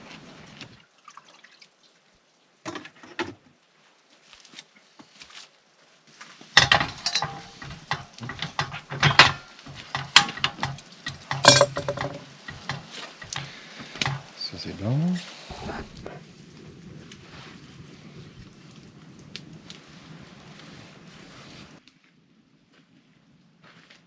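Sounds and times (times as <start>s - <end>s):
cutlery and dishes clattering: 6.6s - 14.4s.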